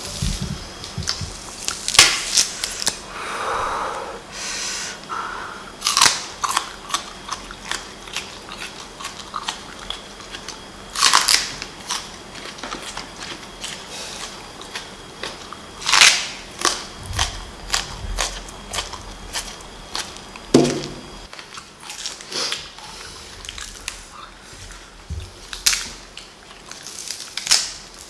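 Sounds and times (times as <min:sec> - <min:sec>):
crunching bites of green onion: 0:05.8 - 0:20.5
wet chewing: 0:05.8 - 0:20.5, 0:21.1 - 0:27.7.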